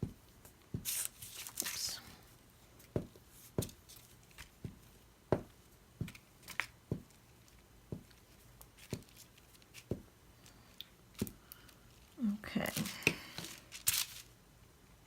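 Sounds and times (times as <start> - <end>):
paper handling: 0.8 - 2.0, 11.2 - 14.4.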